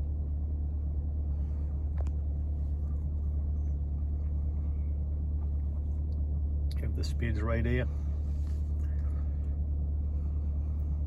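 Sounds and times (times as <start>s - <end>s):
car engine rumble: 0.0s - 11.0s.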